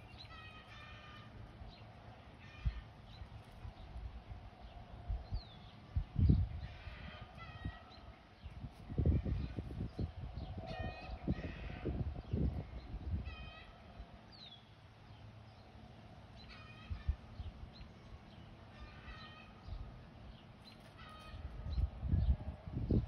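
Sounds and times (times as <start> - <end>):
birds calling: 0.0 - 23.0
wind rumble on microphone: 2.5 - 14.4, 16.7 - 18.2, 20.7 - 23.0.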